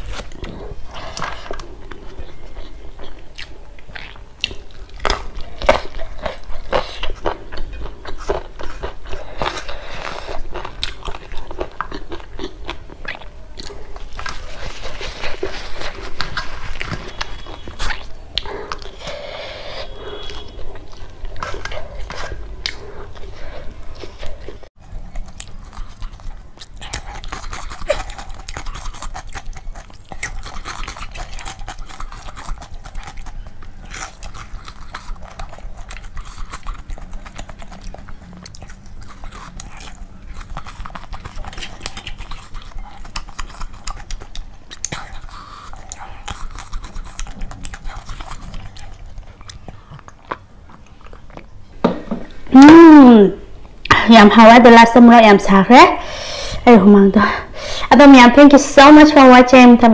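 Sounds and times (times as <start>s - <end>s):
person chewing and crunching: 0.0s - 53.1s.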